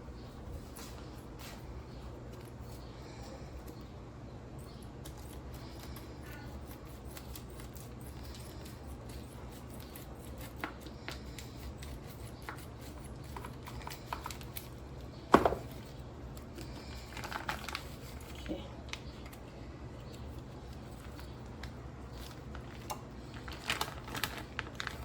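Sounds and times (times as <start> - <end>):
steady low hum: 0.0 - 25.0
kitchen things clicking and tapping: 15.3 - 15.8.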